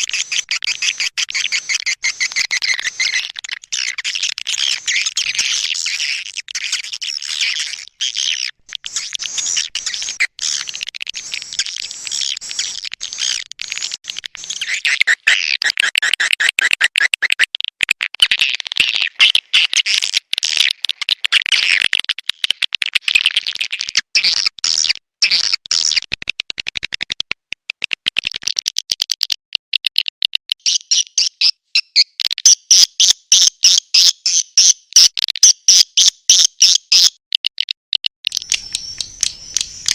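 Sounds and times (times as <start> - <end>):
swiftlets chirping and twittering: 0.0 - 15.4, 38.3 - 39.9.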